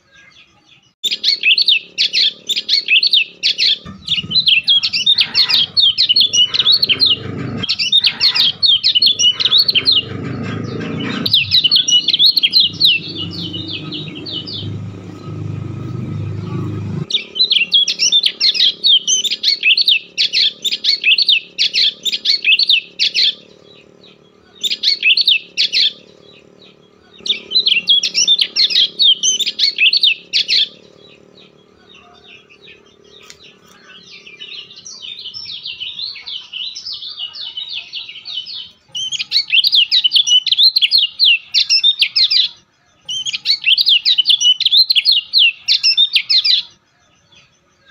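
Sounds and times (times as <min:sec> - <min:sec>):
bird singing high chirping trills: 0:00.0 - 0:47.9
low rumbling noise: 0:01.6 - 0:36.0.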